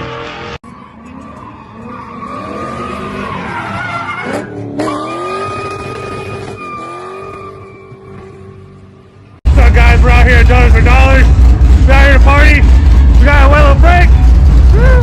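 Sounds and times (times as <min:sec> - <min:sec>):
tires squealing: 0:00.0 - 0:09.0
car engine revving: 0:09.5 - 0:15.0.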